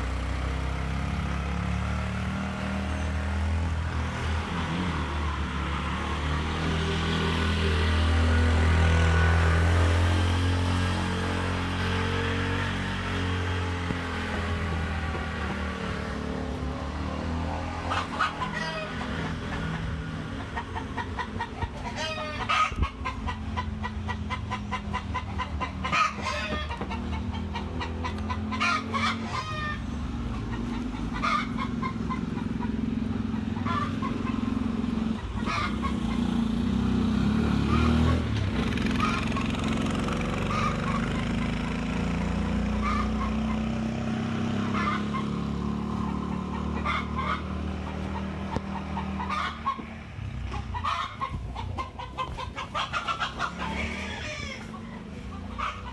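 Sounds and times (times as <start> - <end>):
chickens clucking: 12.7 - 36.7, 37.6 - 55.9.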